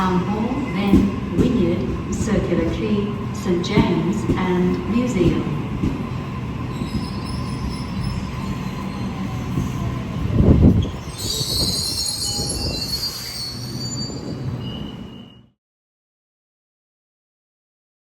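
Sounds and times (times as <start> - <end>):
electric train rumbling: 0.0 - 15.5
train wheels squealing on rails: 6.1 - 15.6.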